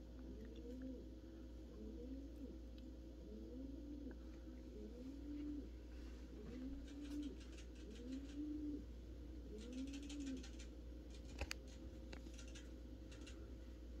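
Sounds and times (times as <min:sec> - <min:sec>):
bird cooing: 0:00.3 - 0:01.1, 0:01.7 - 0:08.9, 0:09.5 - 0:10.6.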